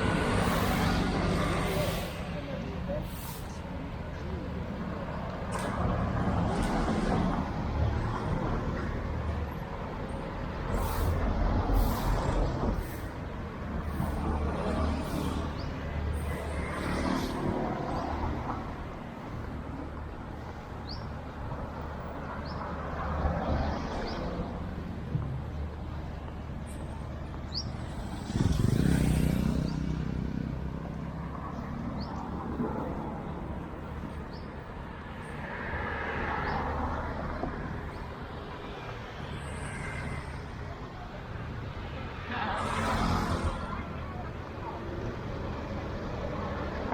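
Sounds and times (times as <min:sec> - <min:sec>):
cars passing: 0:00.0 - 0:46.9
larger vehicles passing: 0:00.0 - 0:46.9
motorbikes passing: 0:27.5 - 0:33.6, 0:39.4 - 0:46.9.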